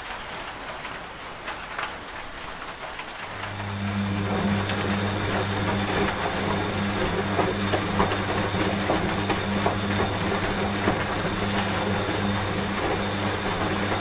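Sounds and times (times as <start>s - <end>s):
raindrop ticks: 0.0s - 3.6s
rain hissing: 0.0s - 14.0s
washing machine humming: 2.1s - 14.0s.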